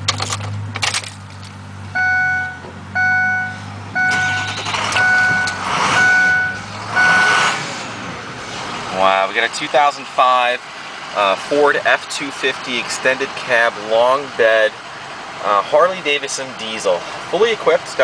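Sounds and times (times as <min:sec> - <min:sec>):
diesel engine idling: 0:00.0 - 0:18.0
electronic warning chime beeping: 0:02.0 - 0:07.4.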